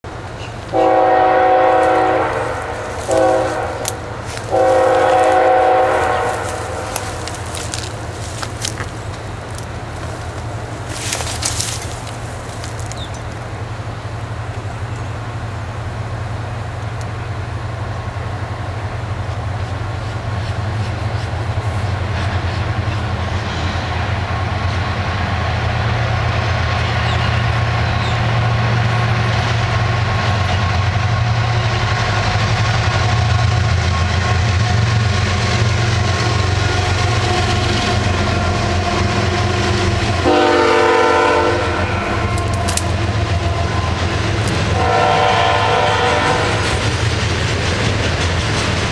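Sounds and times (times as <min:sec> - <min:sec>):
container cars rolling by: 0:00.0 - 0:48.9
diesel locomotive engine rumble: 0:00.0 - 0:48.9
train horn blast: 0:00.7 - 0:08.0, 0:36.0 - 0:46.9.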